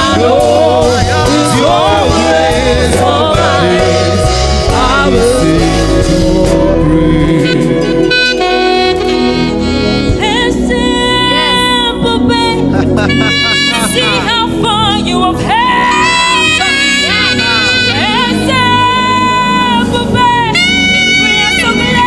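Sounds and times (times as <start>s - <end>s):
person singing: 0.0s - 9.3s, 10.2s - 20.8s
keyboard and bass: 0.0s - 22.0s
saxophone sustained notes: 0.8s - 22.0s.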